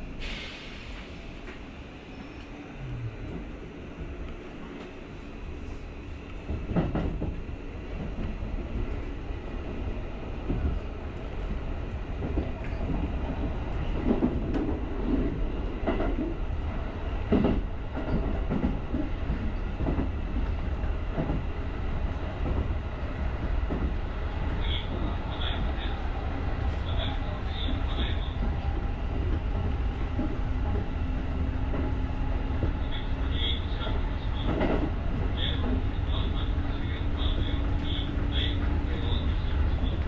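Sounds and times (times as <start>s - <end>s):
train running: 0.0s - 40.0s.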